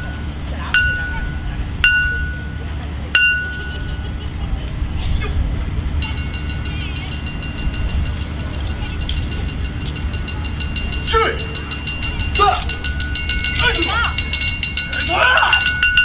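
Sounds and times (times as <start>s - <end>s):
metal bell ringing: 0.0s - 4.1s, 6.0s - 16.0s
steady high tone: 0.0s - 4.2s, 6.0s - 16.0s
low steady rumble: 0.0s - 16.0s
fast faint ticking: 6.0s - 16.0s.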